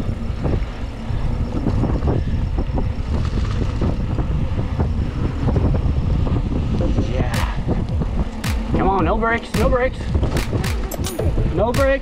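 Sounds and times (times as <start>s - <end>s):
tyres rumbling on trail: 0.0s - 12.0s
bike knocks and rattles: 2.7s - 12.0s.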